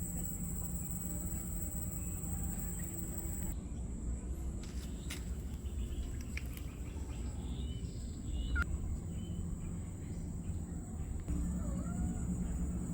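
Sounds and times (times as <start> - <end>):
steady low rumble: 0.0 - 12.9
birds chirping: 4.9 - 12.9.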